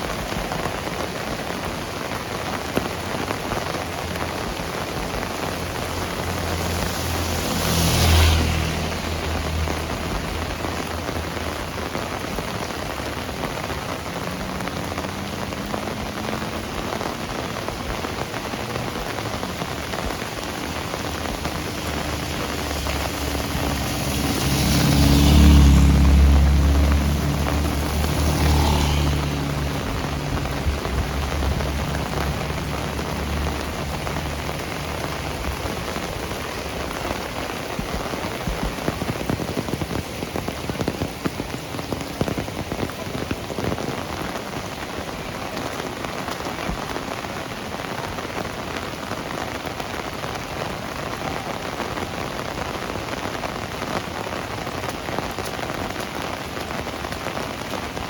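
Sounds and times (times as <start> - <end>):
heavy rain falling: 0.0 - 58.0
vehicle engine hum: 0.0 - 58.0.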